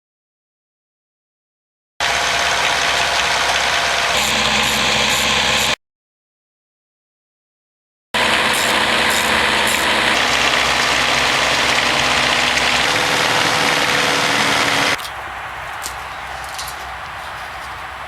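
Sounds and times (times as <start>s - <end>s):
engine running: 2.0s - 5.8s, 8.2s - 15.0s
saw cutting through log: 2.0s - 5.8s, 8.2s - 15.0s.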